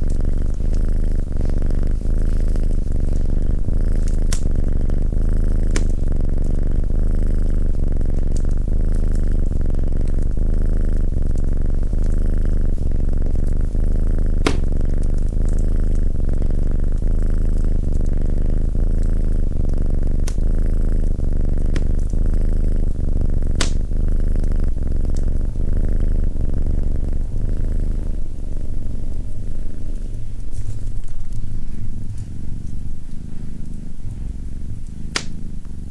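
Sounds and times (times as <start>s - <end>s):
wood fire crackles: 0.0s - 6.4s, 18.7s - 25.6s
cat purring: 0.0s - 35.9s.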